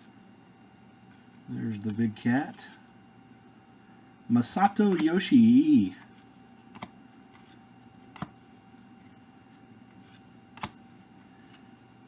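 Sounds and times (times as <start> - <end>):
cards rustling: 1.0 - 3.0, 4.4 - 11.8
card snapping against card: 6.7 - 7.5, 8.1 - 8.4, 10.6 - 10.8.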